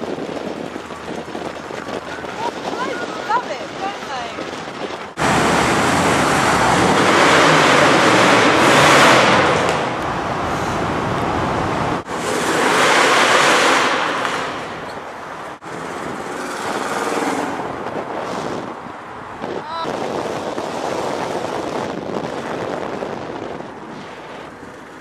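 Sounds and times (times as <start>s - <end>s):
car engine and exhaust passing: 5.1s - 25.0s.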